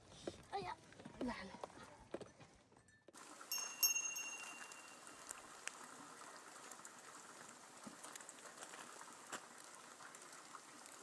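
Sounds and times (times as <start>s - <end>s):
drips ticking: 3.2s - 11.0s
light rain patter: 3.2s - 11.0s.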